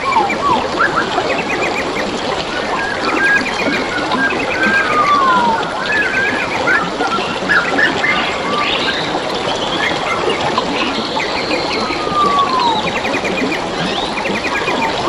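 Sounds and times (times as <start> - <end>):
birds chirping and trilling: 0.0 - 15.0
water trickling over stones: 0.0 - 15.0
bird whistle sliding downward: 2.8 - 8.2, 11.2 - 15.0.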